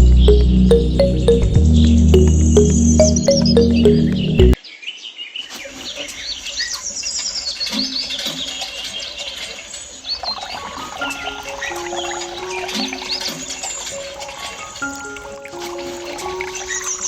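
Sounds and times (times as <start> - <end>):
electronic music: 0.0 - 4.6.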